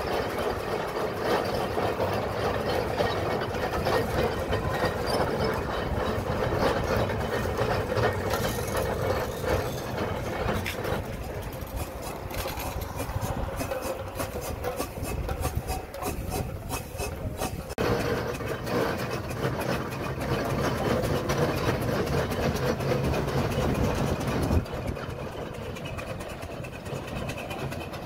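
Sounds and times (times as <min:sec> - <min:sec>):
iron rolls clanking: 0:00.0 - 0:28.0
steam engine beats: 0:00.0 - 0:28.0.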